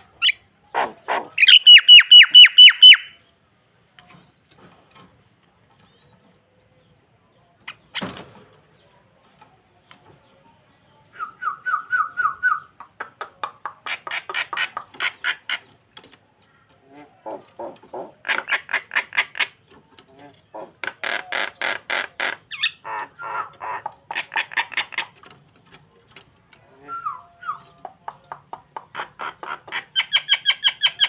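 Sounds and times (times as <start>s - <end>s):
starling harsh calls: 0.2s - 3.2s.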